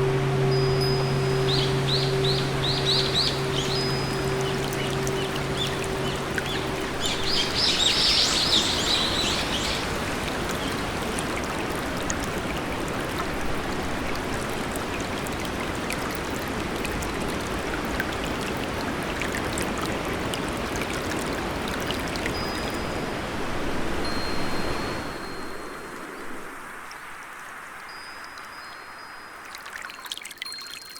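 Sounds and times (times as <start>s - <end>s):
thin high whistle: 0.0s - 10.0s
low hum: 0.0s - 10.4s
birds chirping: 0.0s - 11.0s
rain or running water hiss: 0.0s - 30.9s.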